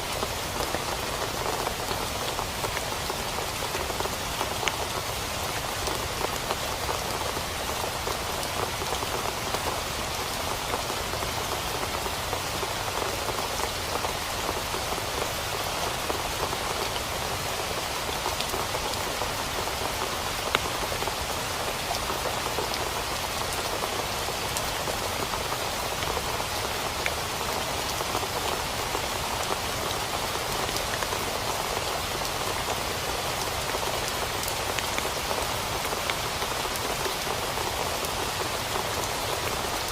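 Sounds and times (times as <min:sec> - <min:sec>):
rain drumming on a tent: 0:00.0 - 0:39.9.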